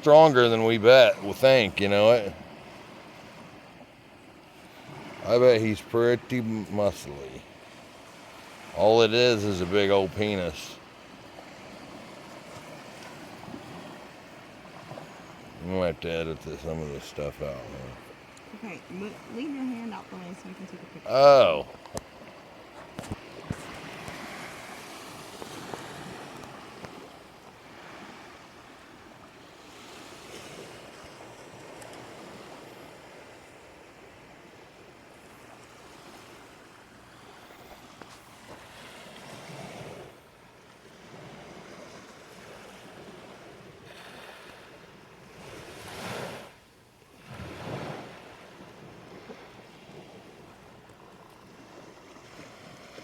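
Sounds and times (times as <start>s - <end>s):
ocean waves breaking: 0.0s - 53.0s.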